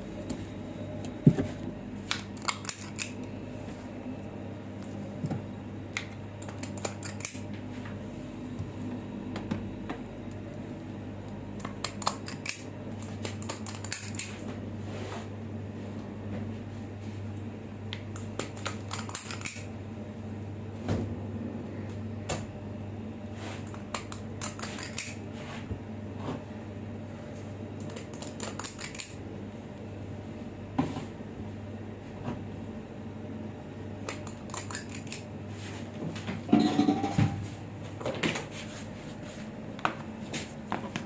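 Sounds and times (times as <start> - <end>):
steady low hum: 0.0 - 41.0
dishes and utensils clinking: 36.5 - 37.4.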